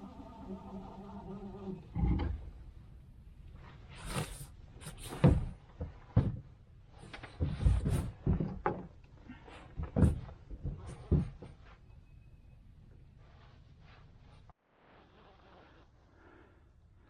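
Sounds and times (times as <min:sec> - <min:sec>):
rustling: 0:12.9 - 0:16.6.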